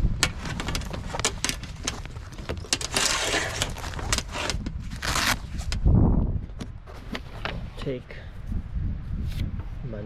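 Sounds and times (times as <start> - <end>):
cooking gear clicks and knocks: 0.0 - 4.8
rustle: 0.0 - 5.9.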